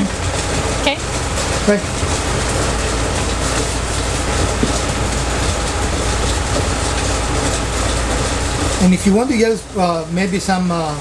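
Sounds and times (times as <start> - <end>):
machine running with low hum: 0.0 - 11.0.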